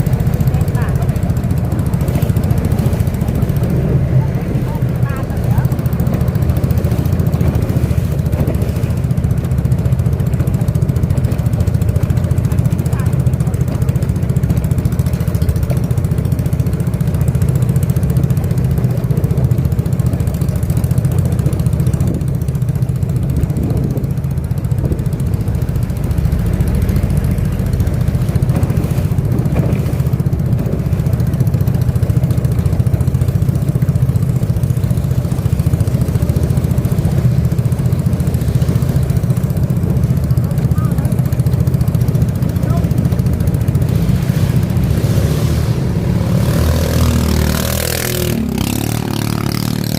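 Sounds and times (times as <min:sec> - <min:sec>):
boat motor droning: 0:00.0 - 0:49.9.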